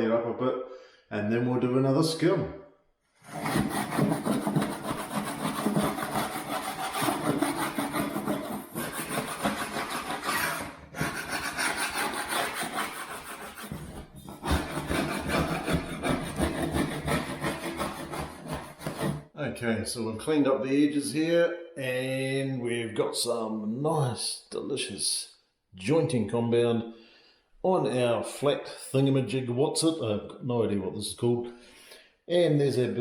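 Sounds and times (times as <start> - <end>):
scraper blade scraping plaster: 3.2 - 19.3.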